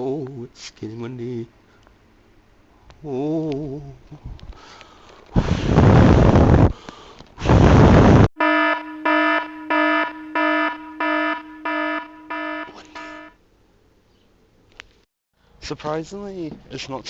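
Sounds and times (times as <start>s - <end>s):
buzzy electronic alarm beeps: 8.4s - 13.3s.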